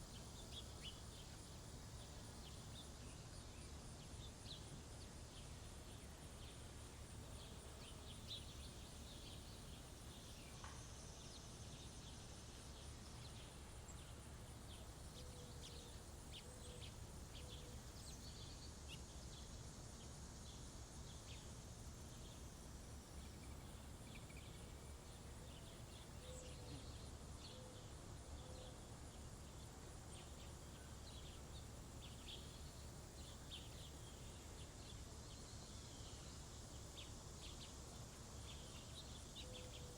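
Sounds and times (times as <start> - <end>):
faint low outdoor rumble: 0.0 - 39.9
songbirds high chirps: 0.0 - 39.9.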